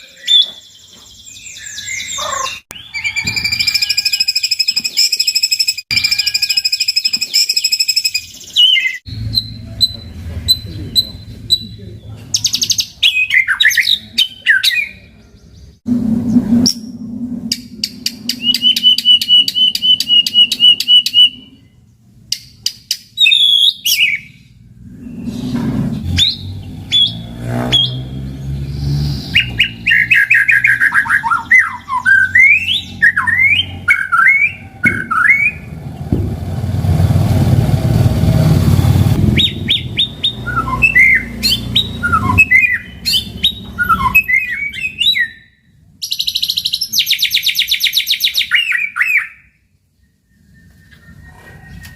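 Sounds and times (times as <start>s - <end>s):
bird singing whistled notes: 0.0s - 35.8s, 39.2s - 51.9s
low rumbling noise: 15.4s - 22.3s, 24.4s - 30.1s, 31.8s - 45.0s.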